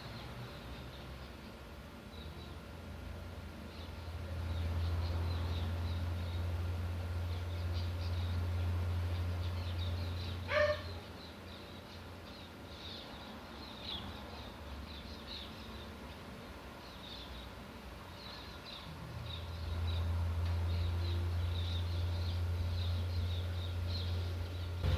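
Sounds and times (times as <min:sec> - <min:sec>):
small birds chirping: 0:00.0 - 0:24.9
low hum: 0:19.0 - 0:24.9.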